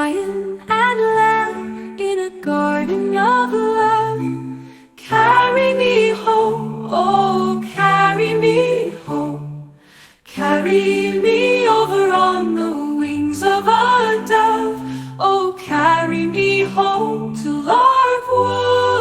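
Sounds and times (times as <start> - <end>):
a cappella gospel singing: 5.0 - 19.0.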